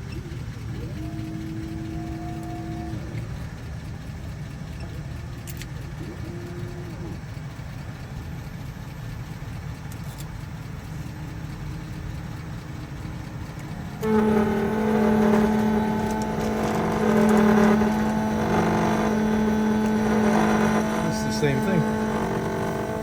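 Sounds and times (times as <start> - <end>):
electric motor whine: 0.0 - 8.7, 10.5 - 23.0
engine idling: 0.0 - 23.0.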